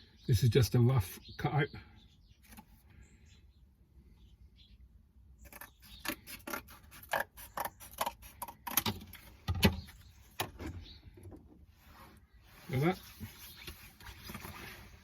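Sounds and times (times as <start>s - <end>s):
scissors cutting cardboard: 5.5s - 9.1s.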